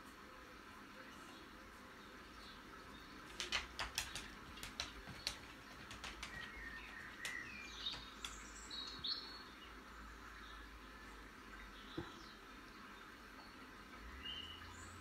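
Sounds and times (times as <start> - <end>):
birds chirping through tv speakers: 0.8 - 15.0
sharp taps: 3.3 - 8.5.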